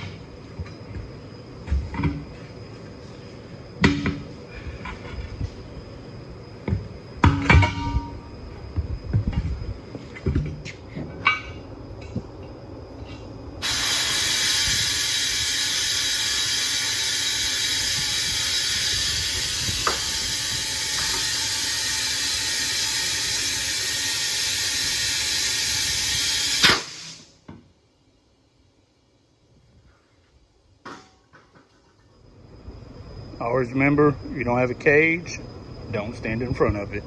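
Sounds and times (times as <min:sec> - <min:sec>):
compressed air hissing into tire: 0:13.0 - 0:27.4.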